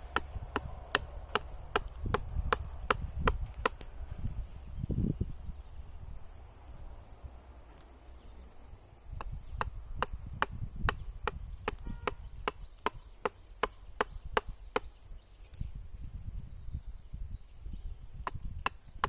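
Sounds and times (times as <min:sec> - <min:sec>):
knife chopping into palm trunk: 0:00.0 - 0:03.9, 0:09.2 - 0:14.9.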